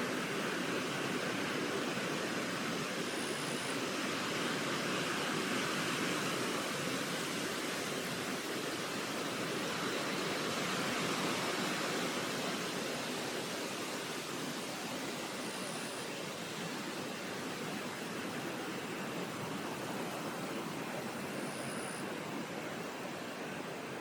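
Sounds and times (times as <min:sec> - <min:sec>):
steady rushing noise: 0:00.0 - 0:24.0.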